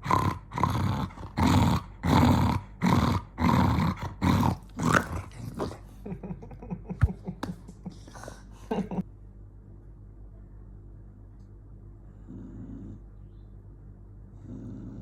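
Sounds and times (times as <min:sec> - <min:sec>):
dog growling: 0:00.0 - 0:06.1, 0:12.1 - 0:13.2, 0:14.3 - 0:15.0.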